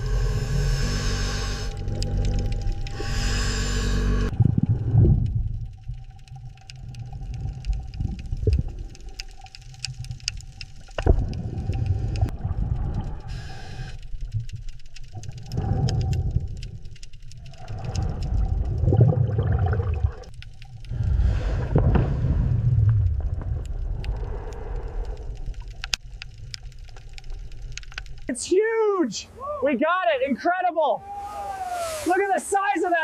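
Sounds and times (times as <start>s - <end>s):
low rumbling: 0.0s - 28.3s
sharp clicks: 1.7s - 3.0s, 23.6s - 28.3s.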